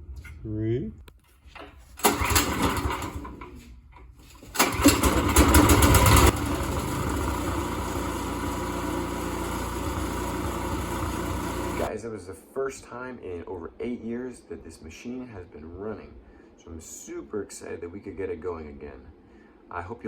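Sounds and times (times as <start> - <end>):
small engine starting and running: 2.0 - 3.5, 4.3 - 11.9.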